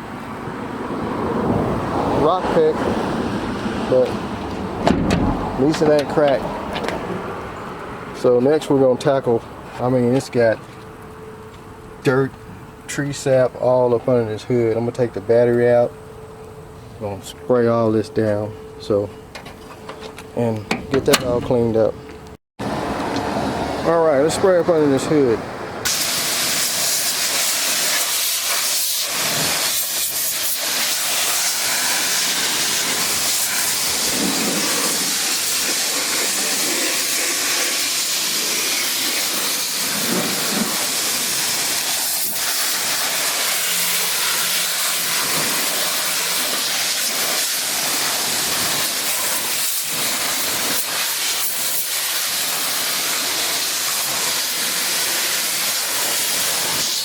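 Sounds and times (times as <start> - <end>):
pressure washer spraying: 25.8 - 57.0.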